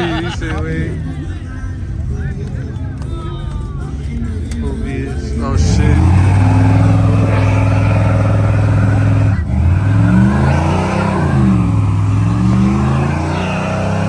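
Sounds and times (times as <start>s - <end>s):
vehicle engines revving: 0.0s - 1.4s, 5.3s - 14.0s.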